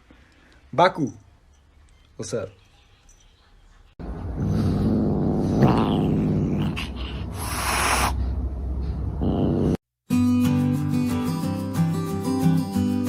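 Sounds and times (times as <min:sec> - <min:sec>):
cat rumbling: 0:04.0 - 0:08.2
cat hissing: 0:05.5 - 0:08.2.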